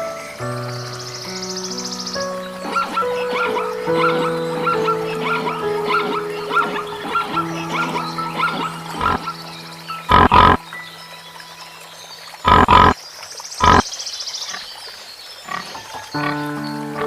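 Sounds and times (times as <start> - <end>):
faint background music: 0.0 - 12.4
animal calling: 2.4 - 9.5, 10.1 - 10.6, 12.4 - 13.0, 13.6 - 13.8.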